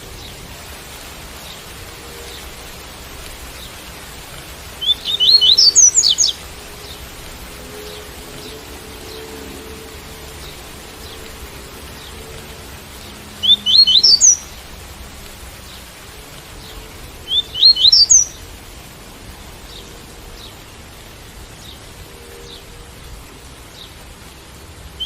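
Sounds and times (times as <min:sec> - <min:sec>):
rain hiss: 0:00.0 - 0:25.0
bird singing sweeping notes: 0:04.8 - 0:14.7, 0:16.6 - 0:18.5.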